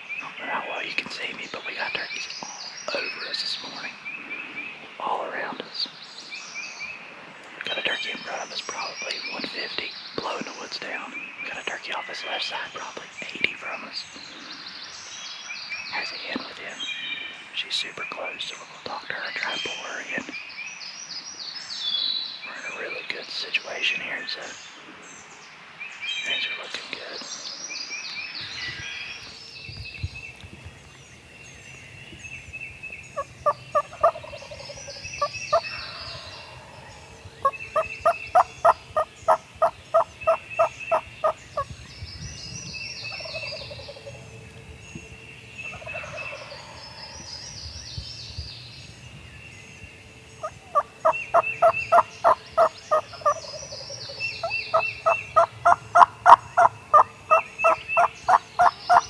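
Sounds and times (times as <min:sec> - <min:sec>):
songbirds chirping: 0:00.0 - 0:59.0
turkey falling calls: 0:30.2 - 0:41.6, 0:50.4 - 0:59.0
turkeys yelping: 0:30.4 - 0:41.7, 0:50.4 - 0:59.0.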